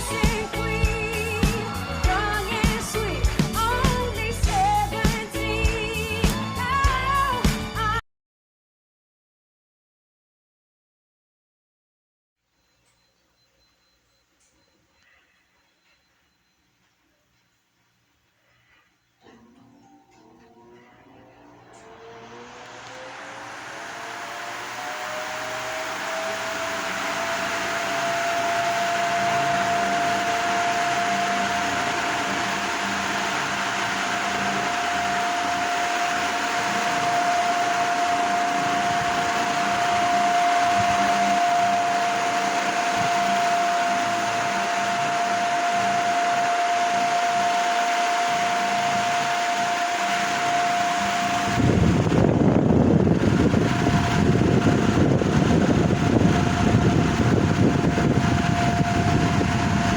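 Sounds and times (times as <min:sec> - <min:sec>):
ceiling fan running: 0:00.0 - 0:08.0, 0:12.5 - 0:59.9.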